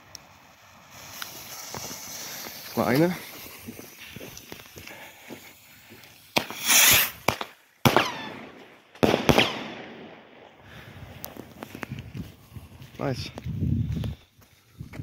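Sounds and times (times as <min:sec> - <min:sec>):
rocket whooshing hiss: 0:00.0 - 0:13.2
sharp rocket bangs: 0:06.2 - 0:10.9.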